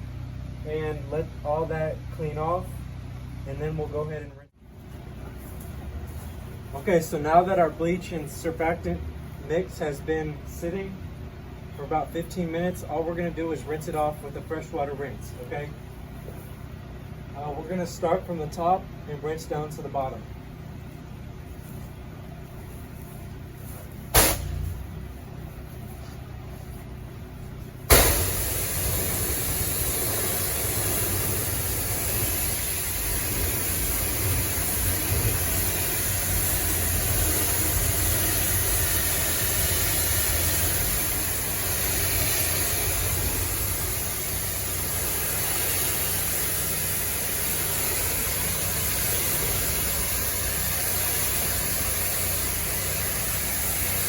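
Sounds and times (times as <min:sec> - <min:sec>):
pressure washer engine running: 0:22.7 - 0:26.7, 0:27.4 - 0:54.0
sharp knock: 0:24.1 - 0:24.9, 0:27.9 - 0:28.4
water jet hissing: 0:24.2 - 0:24.9, 0:27.9 - 0:54.0.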